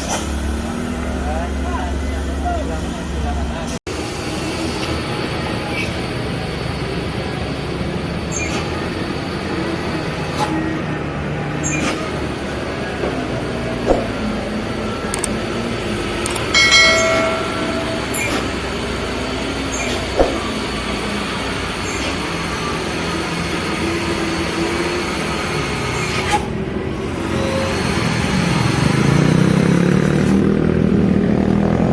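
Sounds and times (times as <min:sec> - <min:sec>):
trucks and cars in traffic: 0:00.0 - 0:31.9
sharp knocks: 0:13.9 - 0:14.3, 0:16.6 - 0:18.9, 0:20.0 - 0:20.6.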